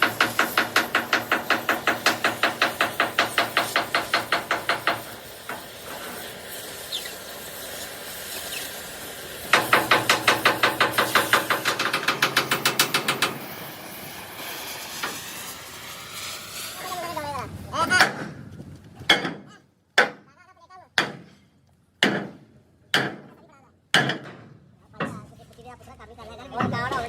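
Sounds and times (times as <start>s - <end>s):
rapid hammering on steel: 0.0s - 5.7s, 9.5s - 13.6s, 21.0s - 21.3s, 22.0s - 23.3s, 23.9s - 24.4s.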